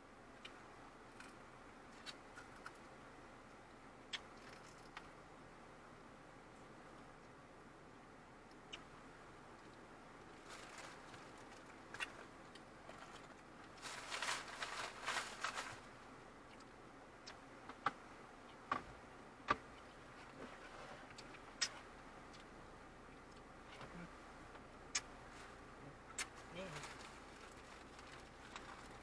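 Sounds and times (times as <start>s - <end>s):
rustling: 10.3s - 16.0s, 25.2s - 29.0s.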